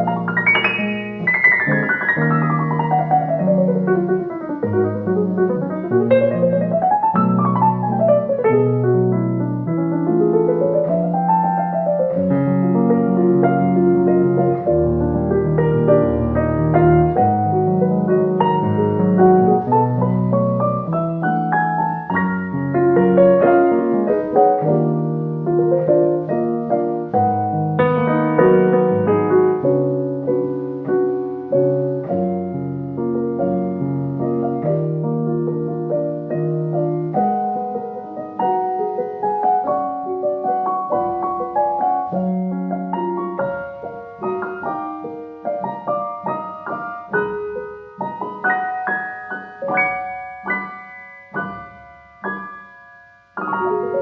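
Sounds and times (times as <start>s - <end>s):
solo piano music: 0.0s - 54.0s.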